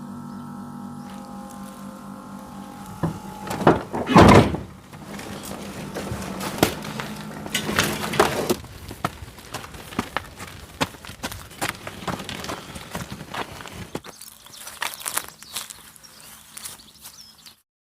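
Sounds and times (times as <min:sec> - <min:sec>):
heavy thump: 0:02.8 - 0:08.6
knocks and clunks: 0:02.8 - 0:14.0.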